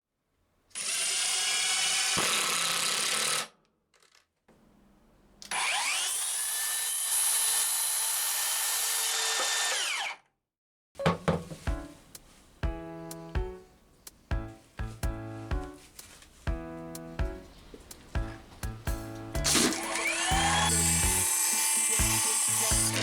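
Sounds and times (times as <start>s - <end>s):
power tool cutting wood: 0.8s - 3.5s, 5.5s - 10.2s, 19.4s - 23.0s
power tool motor whine: 5.5s - 10.2s, 19.5s - 23.0s.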